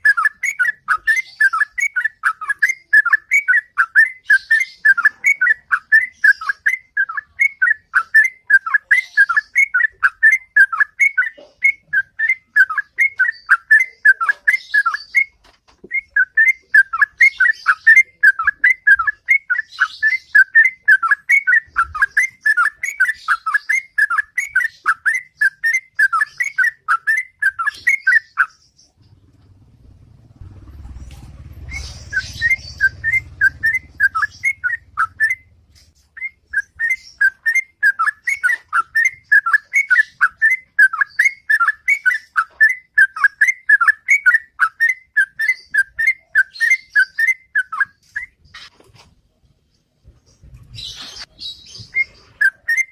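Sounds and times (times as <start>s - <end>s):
bird whistled song: 0.0s - 48.7s, 50.7s - 52.9s
low rumble: 29.0s - 36.0s.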